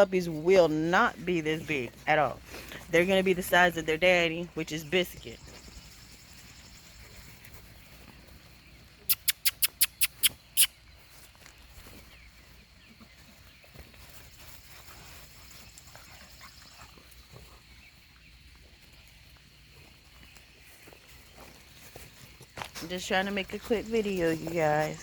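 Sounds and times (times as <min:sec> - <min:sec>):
dogs scuffling and pattering: 0:05.4 - 0:09.1, 0:11.0 - 0:25.0
sharp clicks: 0:09.1 - 0:10.7.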